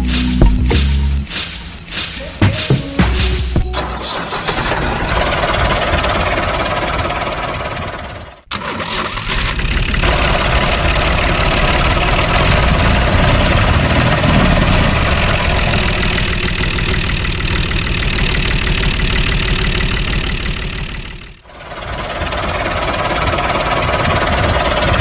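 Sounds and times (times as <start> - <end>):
small motor rattling: 8.5 - 21.5.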